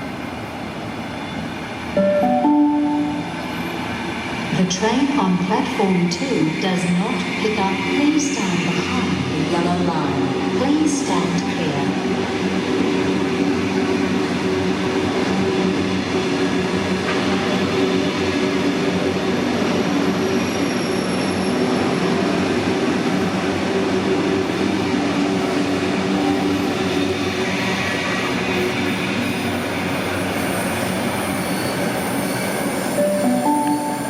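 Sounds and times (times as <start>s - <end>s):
electric train rumbling: 0.0s - 34.0s.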